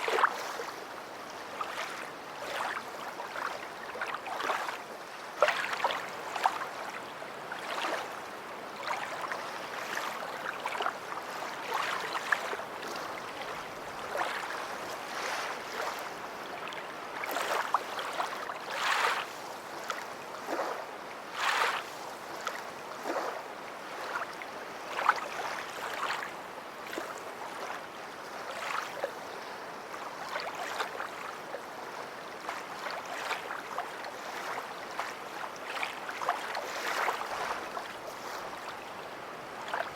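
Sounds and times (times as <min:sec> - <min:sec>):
small waves lapping on shore: 0:00.0 - 0:39.9.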